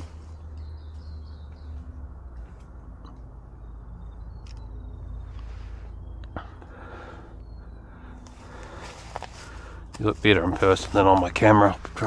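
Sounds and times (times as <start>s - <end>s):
faint high bird chirps: 3.1s - 9.0s.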